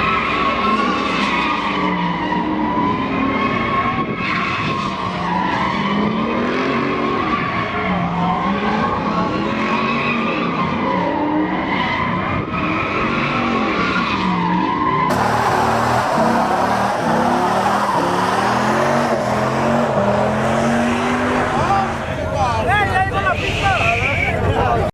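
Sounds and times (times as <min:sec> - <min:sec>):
truck engine revving: 0:15.1 - 0:24.9
tyres squealing: 0:15.1 - 0:24.9.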